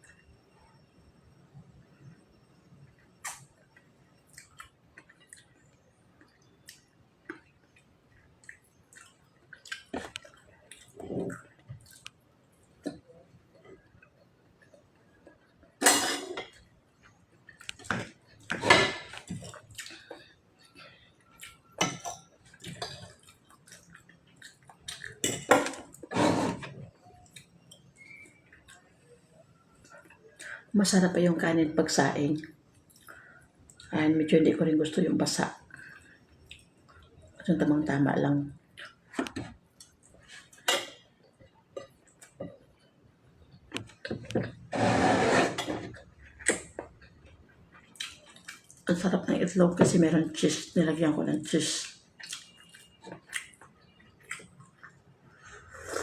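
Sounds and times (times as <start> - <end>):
person chewing food: 3.0 - 15.8, 16.5 - 25.2, 38.7 - 48.9, 51.8 - 56.0.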